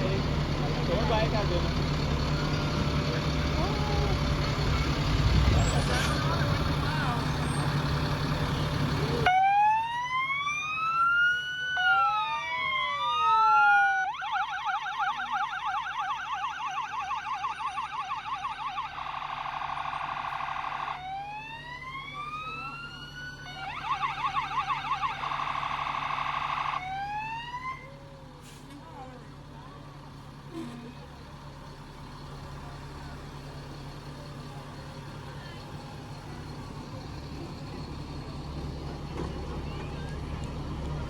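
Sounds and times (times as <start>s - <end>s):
electronic sirens wailing and yelping: 9.3s - 27.9s.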